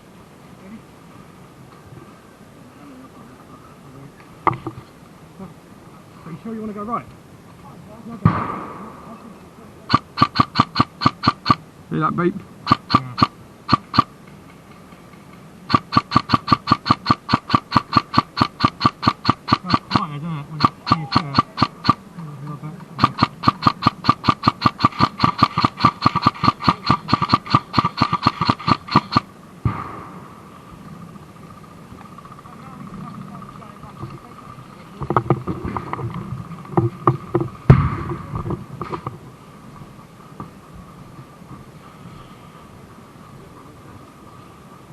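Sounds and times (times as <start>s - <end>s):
rapid short warning beeps: 9.9s - 11.6s, 12.7s - 14.1s, 15.7s - 22.0s, 23.0s - 29.2s
sharp clacks and knocks: 9.9s - 11.6s, 12.7s - 20.0s, 20.6s - 22.0s, 23.0s - 29.3s, 35.0s - 39.2s.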